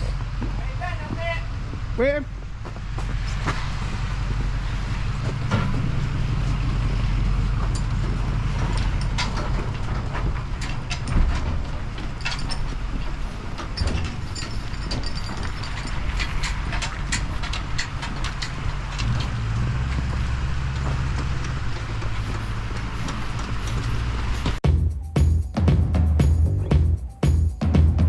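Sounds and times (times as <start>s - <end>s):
rattles and knocks: 0.0s - 28.0s
truck engine running: 0.0s - 28.0s.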